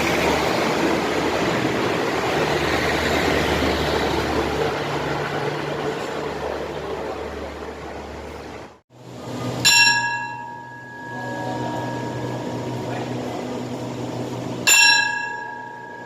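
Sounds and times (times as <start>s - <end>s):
low steady hum: 0.0s - 16.0s
train running noise: 0.0s - 16.0s
station bell chime: 9.5s - 13.1s, 14.6s - 16.0s.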